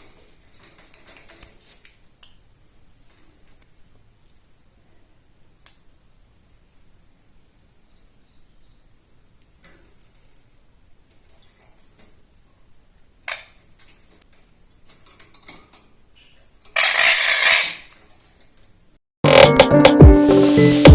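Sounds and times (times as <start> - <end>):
electronic music: 19.2 - 20.9.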